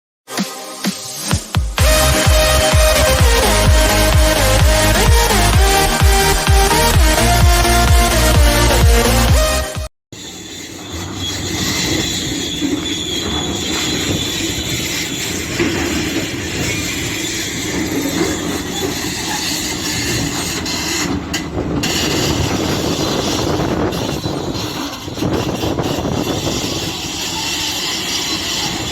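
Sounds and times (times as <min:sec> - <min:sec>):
high steady whine: 0:00.4 - 0:09.8
diesel engine under load: 0:01.8 - 0:28.9.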